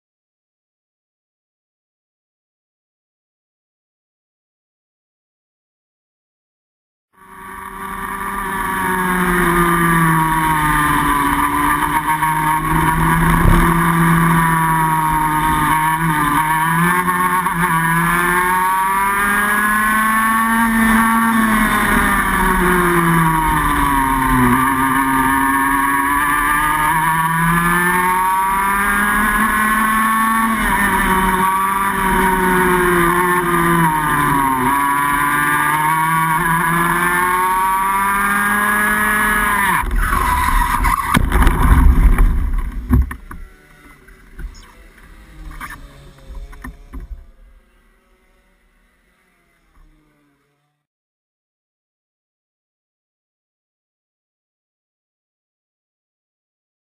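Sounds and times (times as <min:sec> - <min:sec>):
kart engine racing: 0:07.2 - 0:50.9.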